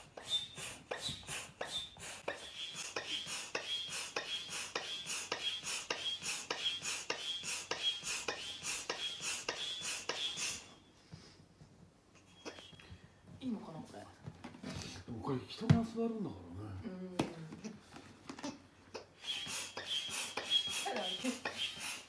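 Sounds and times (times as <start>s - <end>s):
air pump strokes hissing: 0.0s - 10.8s, 19.1s - 22.0s.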